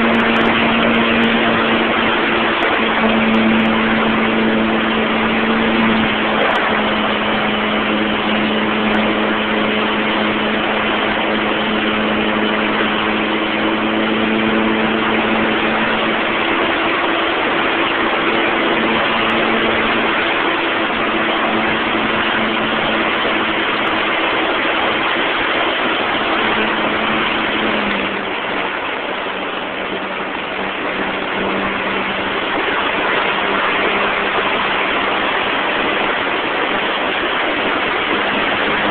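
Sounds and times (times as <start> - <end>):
model airplane motor and propeller: 0.0 - 38.9
wind rush over microphone: 0.0 - 38.9.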